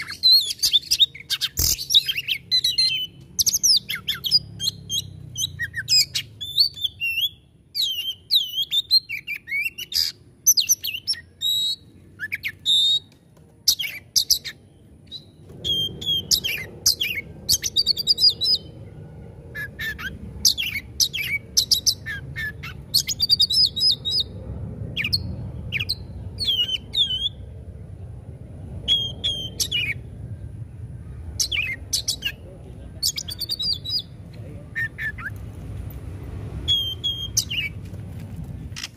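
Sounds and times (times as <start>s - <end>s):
bird singing whistles and chirps: 0.0s - 13.1s, 13.7s - 18.7s, 19.5s - 24.3s, 25.0s - 27.4s, 28.8s - 30.0s, 31.4s - 32.4s, 33.0s - 35.4s, 36.7s - 37.8s
low steady rumble: 14.6s - 38.9s.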